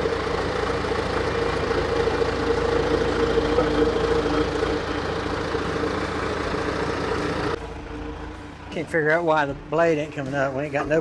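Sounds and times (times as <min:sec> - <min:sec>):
heavy equipment engine idling: 0:00.0 - 0:11.0.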